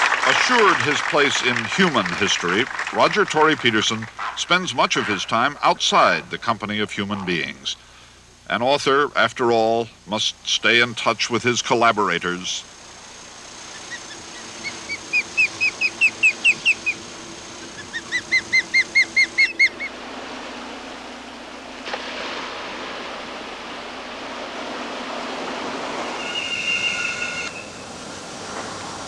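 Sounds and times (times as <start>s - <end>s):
steady rushing noise: 0.0s - 29.0s
bird chirping: 13.6s - 19.9s, 26.2s - 27.9s
brief high bird call: 26.2s - 27.8s.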